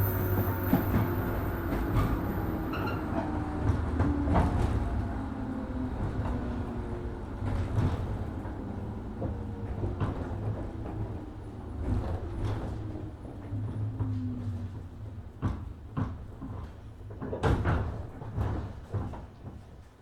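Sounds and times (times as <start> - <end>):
electric train running noise: 0.0 - 12.8.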